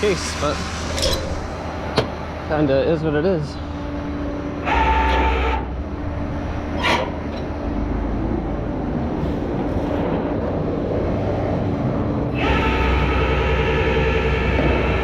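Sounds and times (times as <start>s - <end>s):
short mechanical whine: 0.0s - 2.3s, 3.6s - 5.9s, 12.3s - 15.0s
tow truck mechanical hum: 0.0s - 15.0s
loading gear whining: 0.8s - 2.1s.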